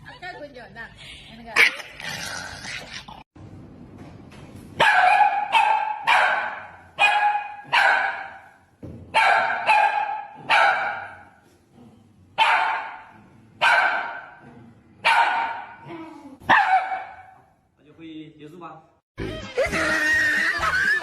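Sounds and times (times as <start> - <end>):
dog barking: 4.8 - 11.4, 12.4 - 14.4, 15.0 - 15.8, 16.4 - 17.5.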